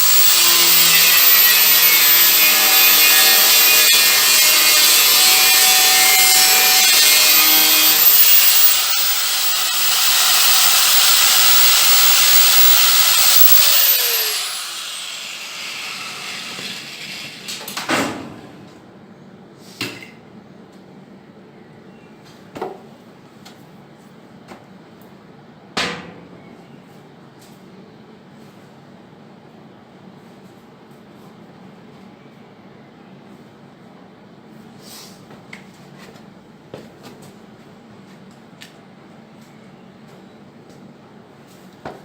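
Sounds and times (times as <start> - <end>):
grinder spinning down whine: 0.0 - 17.3
angle grinder cutting sheet steel: 0.0 - 17.5.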